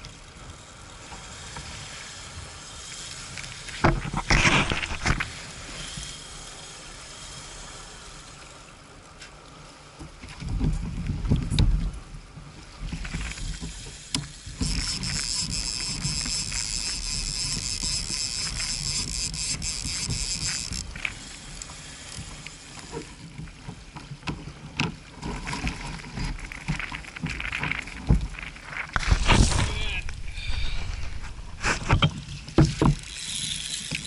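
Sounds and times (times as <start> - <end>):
fishing reel drag buzzing: 0.1 - 9.0, 13.1 - 23.3, 29.0 - 34.0
wind rumble on microphone: 10.3 - 13.6, 27.2 - 33.0.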